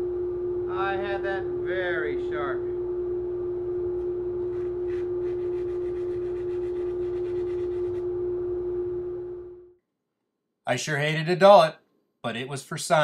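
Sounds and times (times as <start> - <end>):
wood lathe humming: 3.8 - 9.6.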